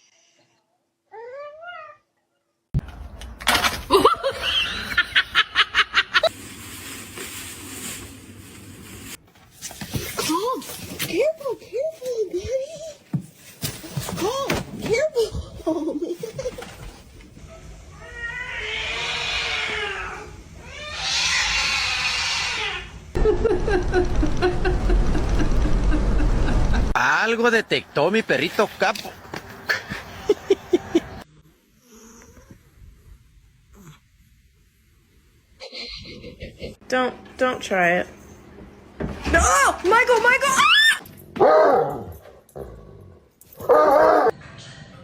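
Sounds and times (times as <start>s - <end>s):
person laughing: 3.9s - 6.3s, 23.2s - 27.0s, 29.7s - 31.2s, 35.6s - 36.8s
cat yowling: 17.9s - 22.9s
loud abrupt sound: 23.3s - 27.2s.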